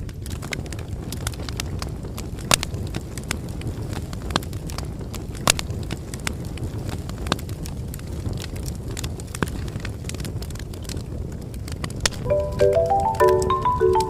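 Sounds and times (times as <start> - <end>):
bonfire crackling: 0.0 - 14.0
low rumble of flames: 0.0 - 14.0.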